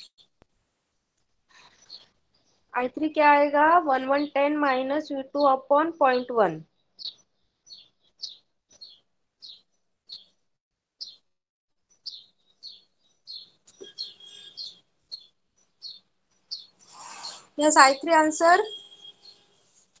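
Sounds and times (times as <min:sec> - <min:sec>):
small bird chirping: 0:01.6 - 0:02.7, 0:06.7 - 0:10.4, 0:11.0 - 0:11.2, 0:11.9 - 0:20.0.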